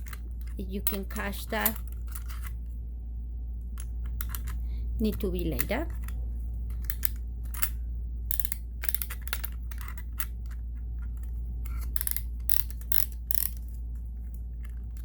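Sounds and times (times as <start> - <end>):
steady low hum: 0.0 - 15.0
sewing attachment clicking and rattling: 11.9 - 13.7.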